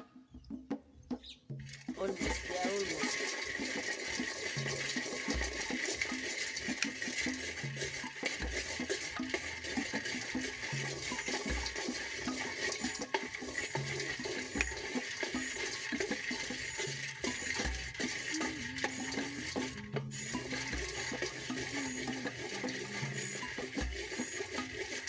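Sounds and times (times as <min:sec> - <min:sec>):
soft background music: 0:00.0 - 0:25.0
peanuts rattling in a pan: 0:01.8 - 0:25.0.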